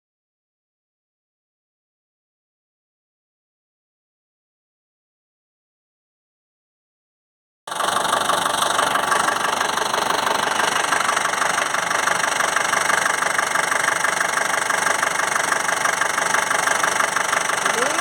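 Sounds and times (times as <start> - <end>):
car engine idling: 7.7 - 18.0.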